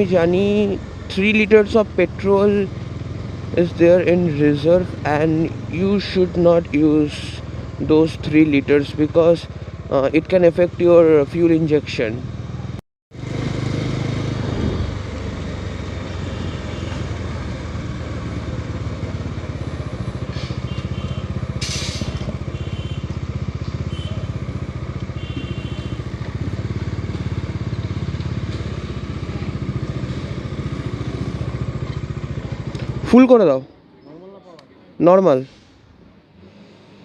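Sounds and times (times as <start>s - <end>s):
motorcycle engine running: 0.0s - 33.2s
brief hiss: 21.6s - 22.2s.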